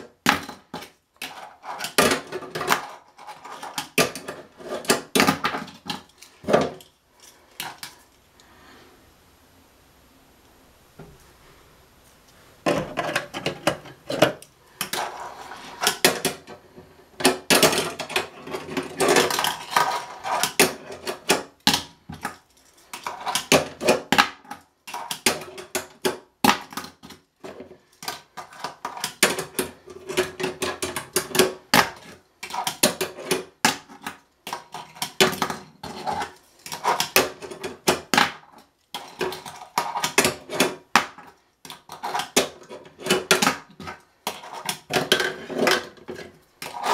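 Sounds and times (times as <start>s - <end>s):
small wheels rolling on stone: 41.8s - 46.9s.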